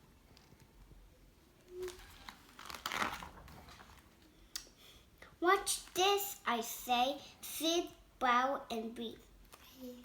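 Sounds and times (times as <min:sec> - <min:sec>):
paper rustling: 0:01.8 - 0:04.2.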